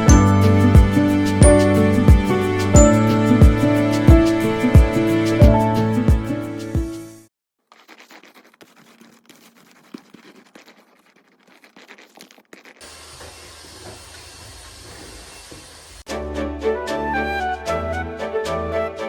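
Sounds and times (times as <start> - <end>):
lint roller rolling over fabric: 7.6 - 15.9
vacuum cleaner running: 12.8 - 16.0.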